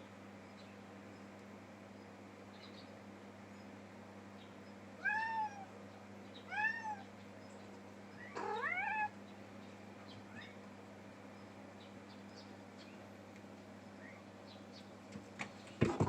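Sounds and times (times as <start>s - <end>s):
cat meowing: 5.0s - 5.7s, 6.5s - 7.1s, 8.2s - 9.2s.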